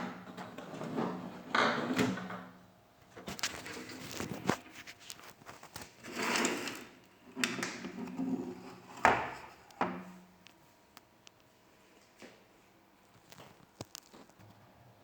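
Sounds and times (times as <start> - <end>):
scrape: 3.4 - 6.9.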